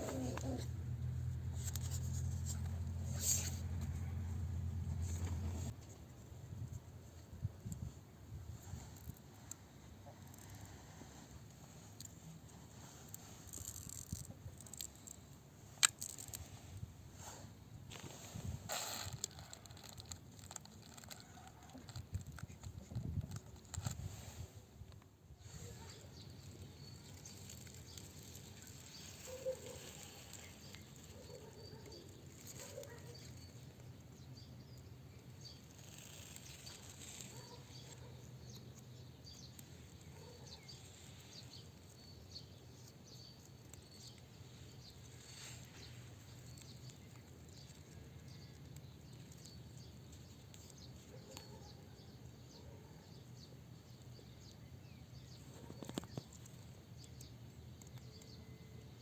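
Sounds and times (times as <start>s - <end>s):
distant bird chirps: 25.5s - 59.0s.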